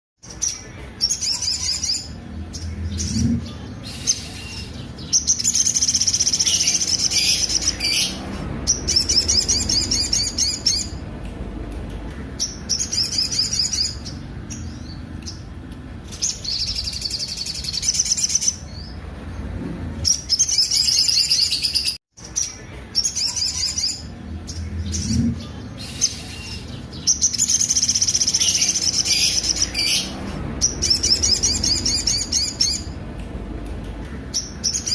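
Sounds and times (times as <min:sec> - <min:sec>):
sunbird singing trilled song: 0:00.2 - 0:11.0, 0:16.1 - 0:19.0, 0:20.0 - 0:33.0.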